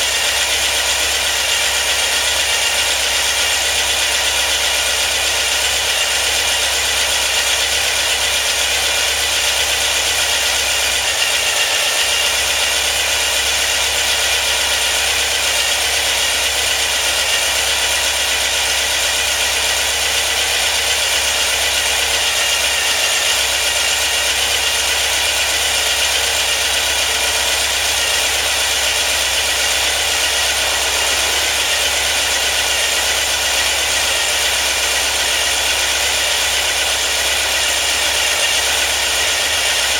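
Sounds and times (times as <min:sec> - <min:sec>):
car engine running: 0:09.0 - 0:39.9.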